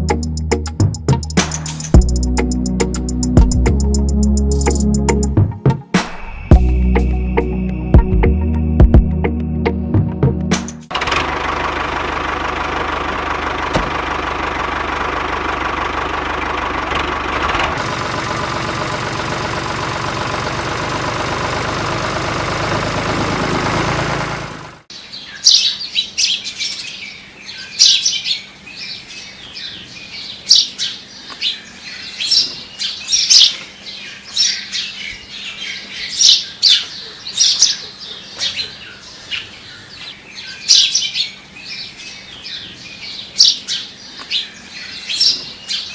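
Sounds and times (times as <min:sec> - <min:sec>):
birds chirping: 0:11.2 - 0:45.9.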